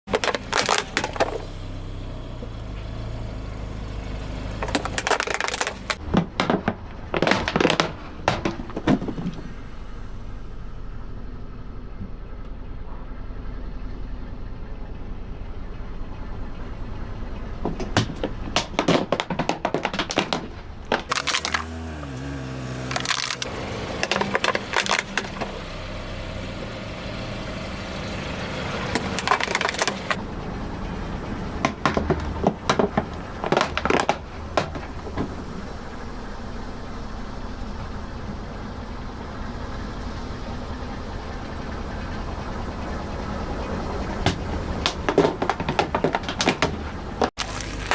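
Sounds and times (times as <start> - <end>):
car engine running: 0.0 - 47.9
tyres crushing brittle objects: 0.1 - 1.4, 4.6 - 9.1, 18.6 - 25.6, 28.9 - 30.2, 44.8 - 47.9.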